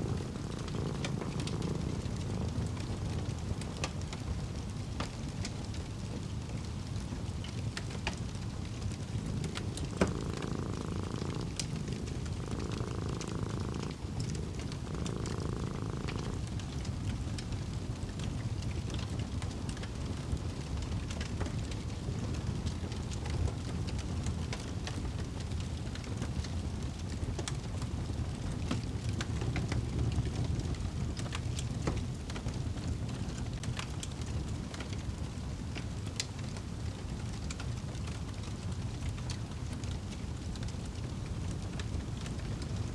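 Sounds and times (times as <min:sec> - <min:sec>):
cat purring: 0:00.0 - 0:27.1, 0:38.0 - 0:42.9
wood fire crackling: 0:00.0 - 0:42.9.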